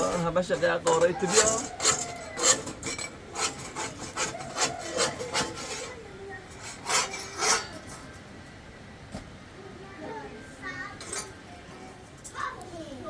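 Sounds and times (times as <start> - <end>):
rubbing or scraping strokes: 0.0 - 7.9.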